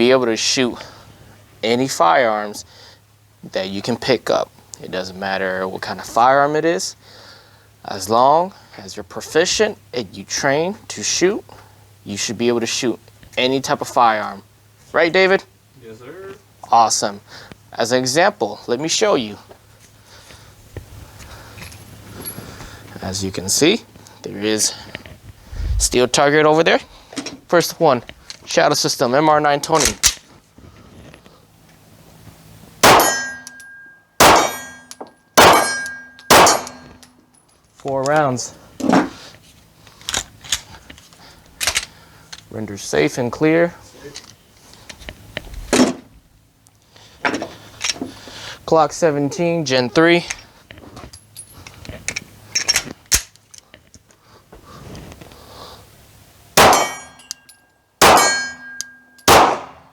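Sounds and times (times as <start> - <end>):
pistol shots: 32.8 - 33.6, 34.2 - 34.8, 35.4 - 37.0, 56.6 - 57.2, 58.0 - 59.9
steel target clanging: 32.8 - 37.1, 56.6 - 59.8
pistol handling clicks: 32.8 - 37.2, 40.0 - 42.5, 52.1 - 53.7, 56.6 - 59.8.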